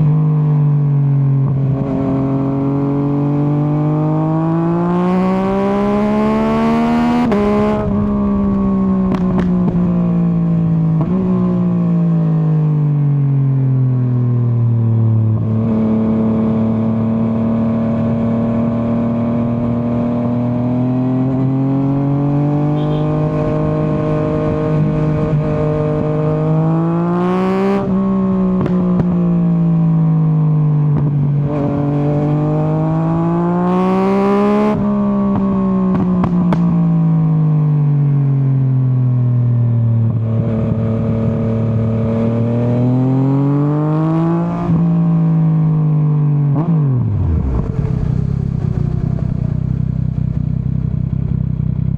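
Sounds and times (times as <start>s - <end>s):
motorcycle engine revving: 1.5s - 12.4s, 15.4s - 30.1s, 40.1s - 51.9s
wind noise: 47.0s - 51.4s.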